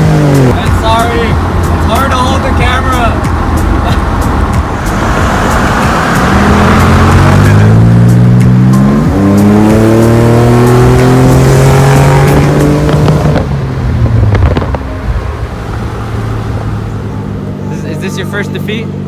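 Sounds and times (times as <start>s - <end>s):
sports car engine at full throttle: 0.0s - 19.0s
exhaust pops and clicks: 12.2s - 15.0s.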